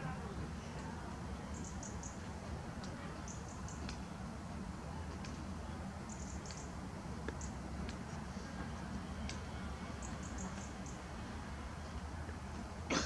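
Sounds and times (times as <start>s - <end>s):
faint high-pitched bird chirps: 10.0s - 11.0s.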